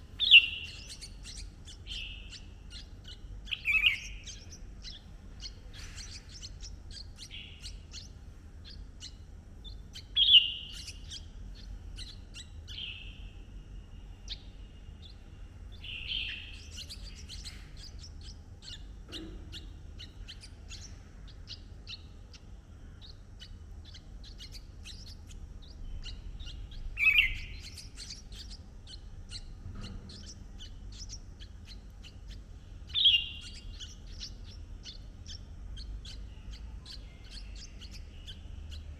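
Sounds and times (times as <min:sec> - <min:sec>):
bulbul calls: 0:00.0 - 0:13.4, 0:14.2 - 0:38.9.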